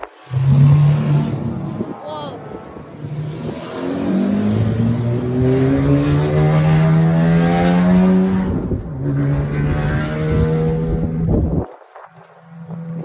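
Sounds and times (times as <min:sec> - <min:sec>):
race car engine accelerating: 0:00.1 - 0:11.6.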